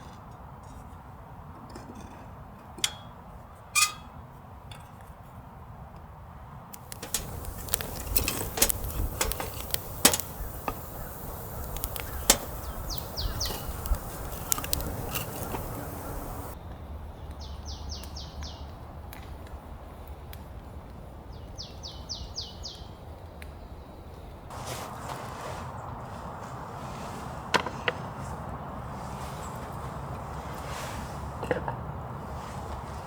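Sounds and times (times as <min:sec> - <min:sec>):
bird song falling notes: 0:06.8 - 0:16.6
sharp clicks and knocks: 0:06.8 - 0:16.6.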